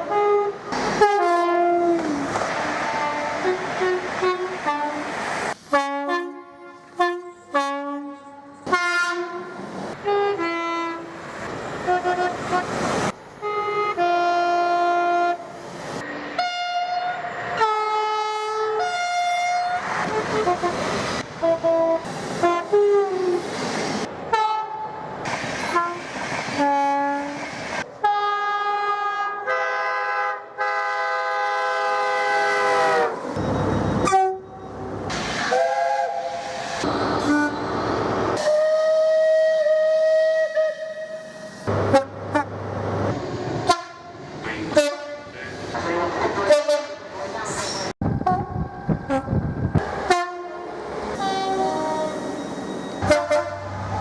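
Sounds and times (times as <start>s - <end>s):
long multi-note train horn: 0.0s - 5.1s, 5.7s - 11.2s, 11.8s - 12.7s, 13.4s - 15.4s, 16.3s - 23.4s, 24.3s - 24.9s, 25.7s - 27.4s, 28.0s - 33.3s, 34.0s - 34.6s, 35.5s - 36.5s, 37.2s - 37.7s, 38.4s - 42.5s, 43.6s - 45.3s, 46.5s - 47.1s, 48.2s - 52.4s, 53.0s - 54.0s
two-tone train horn blasts: 0.0s - 5.1s, 5.7s - 11.1s, 11.8s - 12.7s, 13.4s - 15.4s, 16.3s - 20.8s, 21.4s - 23.3s, 24.3s - 24.9s, 25.7s - 27.4s, 28.0s - 33.3s, 34.0s - 34.7s, 37.2s - 37.8s, 38.4s - 42.6s, 43.6s - 45.4s, 46.4s - 47.1s, 48.1s - 52.4s, 53.0s - 54.0s.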